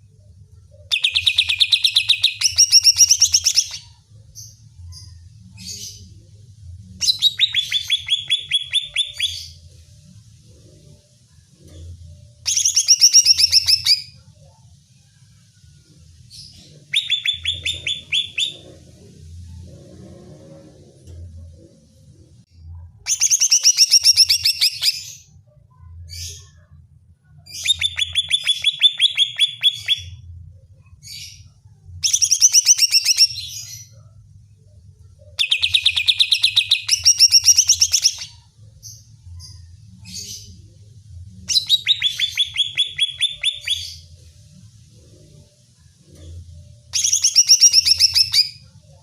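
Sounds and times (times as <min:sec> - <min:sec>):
bird singing trilled phrases: 0:00.9 - 0:04.0, 0:07.0 - 0:09.6, 0:12.5 - 0:14.2, 0:16.8 - 0:18.8, 0:27.5 - 0:30.2, 0:32.1 - 0:34.0, 0:35.4 - 0:38.5, 0:41.4 - 0:44.1, 0:46.9 - 0:48.6.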